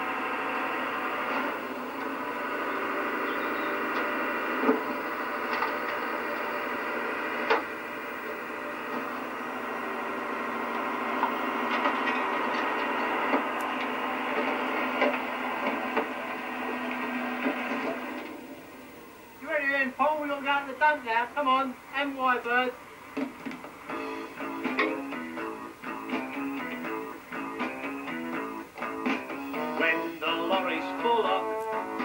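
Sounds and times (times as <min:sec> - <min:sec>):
garbage truck compactor running: 0:00.0 - 0:19.4, 0:22.8 - 0:30.8
rubbish cracking and crunching: 0:03.8 - 0:09.3.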